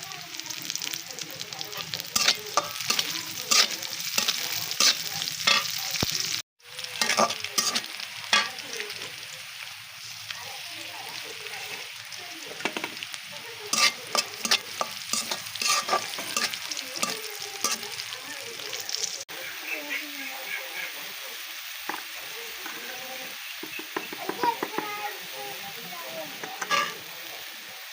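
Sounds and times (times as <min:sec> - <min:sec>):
food sizzling in oil: 0:00.0 - 0:27.9
spatula scraping a pan: 0:01.7 - 0:06.1, 0:07.0 - 0:08.6, 0:13.7 - 0:18.0, 0:26.3 - 0:27.0.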